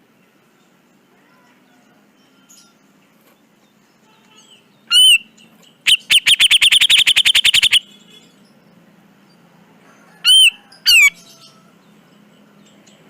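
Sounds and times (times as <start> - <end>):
harsh bird chattering: 4.9 - 5.3, 5.9 - 7.9, 10.3 - 11.2
bulbul calling: 4.9 - 8.0, 10.3 - 11.2.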